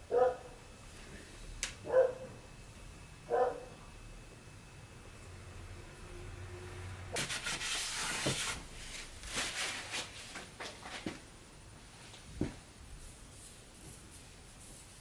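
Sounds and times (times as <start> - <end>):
scraping and rubbing: 7.2 - 11.2.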